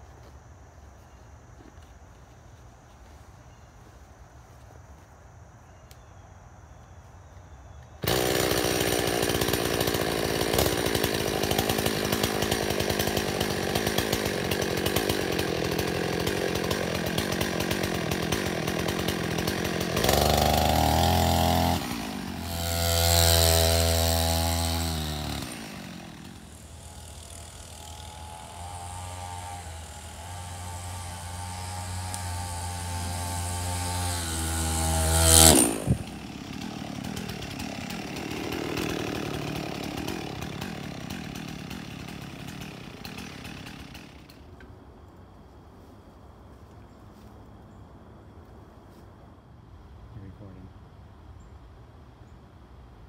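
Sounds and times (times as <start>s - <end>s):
two-stroke chainsaw engine running: 8.0s - 44.5s.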